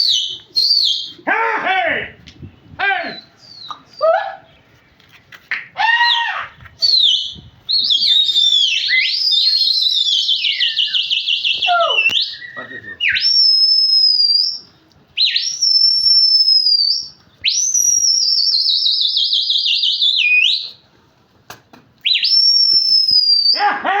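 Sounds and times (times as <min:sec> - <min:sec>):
shrill warbling whistling: 0:06.8 - 0:20.7, 0:22.0 - 0:23.6.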